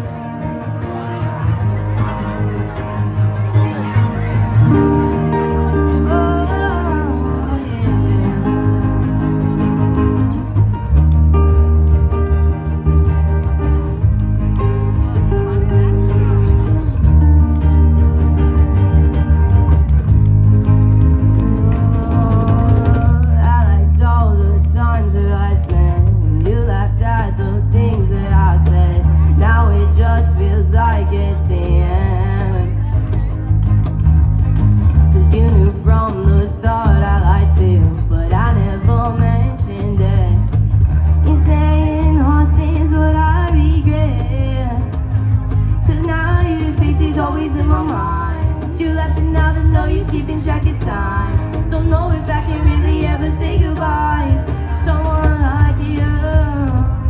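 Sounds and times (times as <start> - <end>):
person singing: 0.0 - 11.0, 21.2 - 33.4, 34.9 - 57.0
guitar: 0.0 - 57.0
heavy bass: 0.0 - 57.0
live band playing: 0.0 - 57.0.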